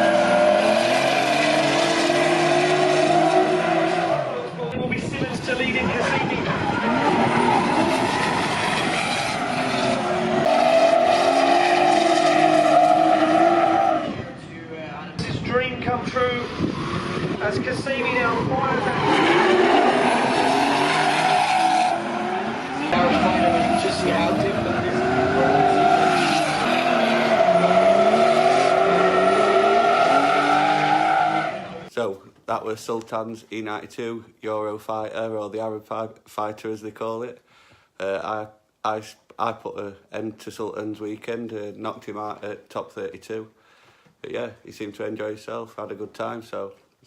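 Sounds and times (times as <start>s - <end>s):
car engines at high revs: 0.0s - 4.5s, 6.5s - 14.2s, 18.2s - 31.9s
tyres skidding and squealing: 0.0s - 4.7s, 5.8s - 14.6s, 16.4s - 31.9s.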